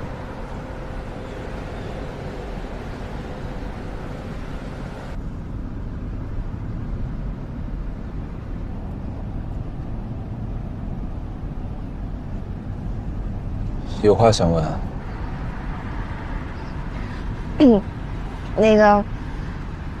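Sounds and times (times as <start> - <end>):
high road hiss: 0.0 - 5.8
car road and engine rumble: 0.0 - 20.0.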